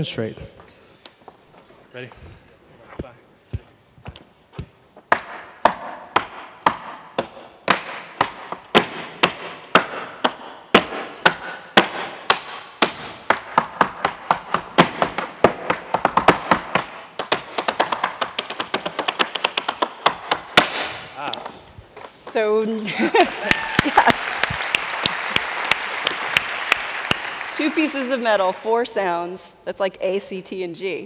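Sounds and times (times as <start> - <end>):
tap shoes striking floor: 3.0 - 22.4.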